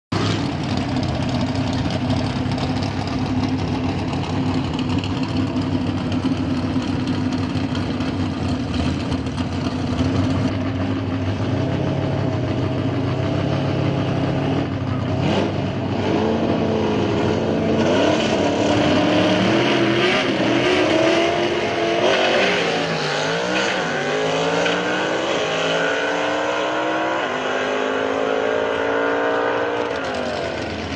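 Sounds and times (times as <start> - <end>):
pickup truck engine revving: 8.8 - 30.9.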